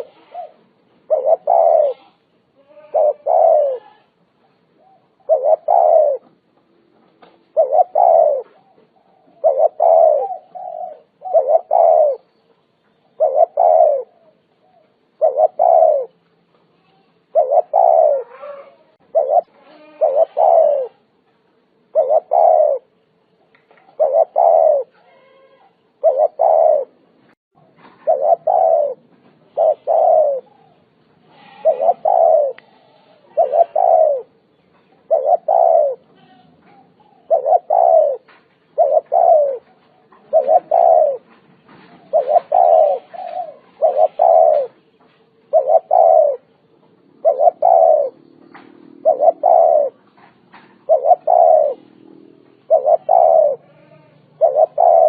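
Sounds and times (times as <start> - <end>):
dove cooing: 0.0 - 6.4, 7.2 - 12.4, 13.0 - 16.2, 17.2 - 21.1, 21.9 - 23.0, 23.7 - 55.0.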